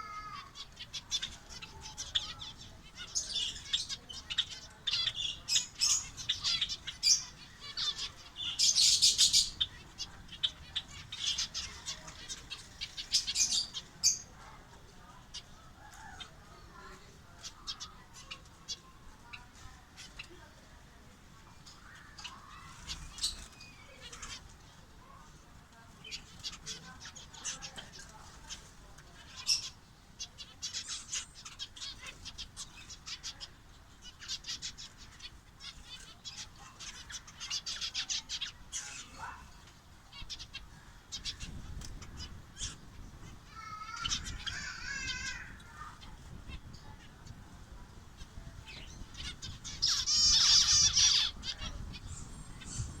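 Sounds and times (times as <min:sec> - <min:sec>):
finches chirping: 0:00.0 - 0:14.4, 0:48.2 - 0:53.0.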